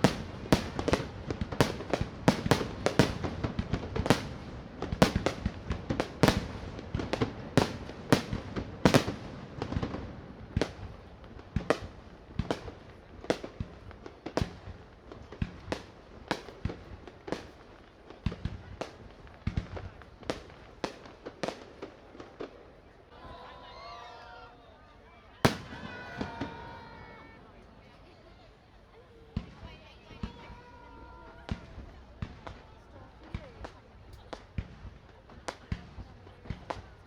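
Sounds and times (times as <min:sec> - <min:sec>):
aerial fireworks bursting: 0:00.0 - 0:22.4, 0:25.4 - 0:27.6.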